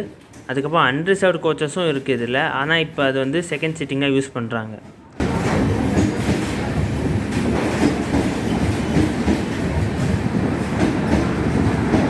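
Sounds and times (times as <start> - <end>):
train wheels clattering over rail joints: 5.2 - 12.0.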